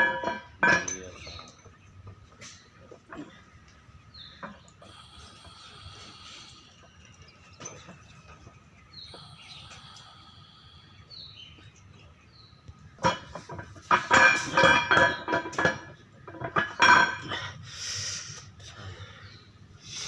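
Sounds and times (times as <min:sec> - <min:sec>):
metal tools clinking: 0:00.0 - 0:01.8.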